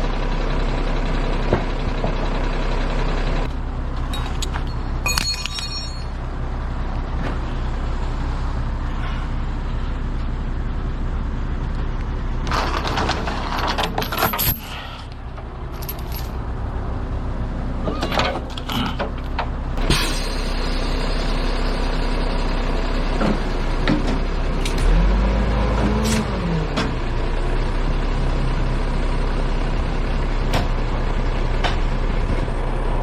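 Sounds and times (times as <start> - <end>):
truck diesel engine running: 0.0 - 33.0
metal clinking and clattering: 4.1 - 6.2, 15.8 - 16.4.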